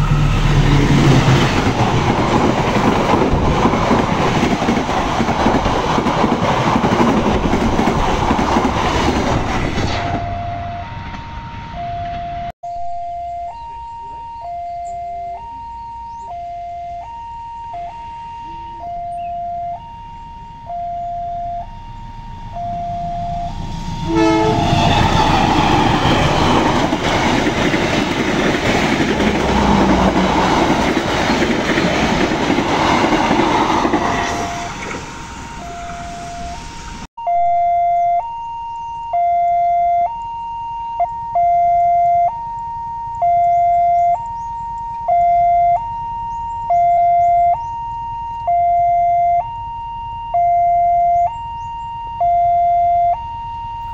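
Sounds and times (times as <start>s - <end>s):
train passing: 0.0s - 12.5s, 21.9s - 37.1s
level crossing alarm two tones: 10.1s - 28.1s, 33.3s - 53.9s.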